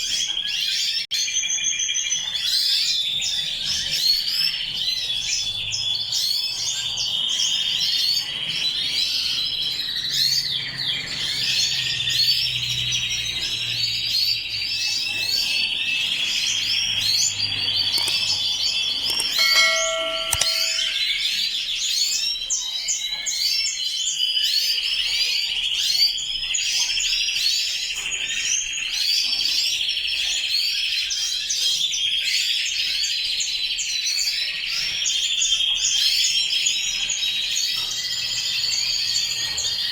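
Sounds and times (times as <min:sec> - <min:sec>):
canaries chirping and singing: 0:00.0 - 0:39.9
short ringing tone: 0:19.1 - 0:21.2.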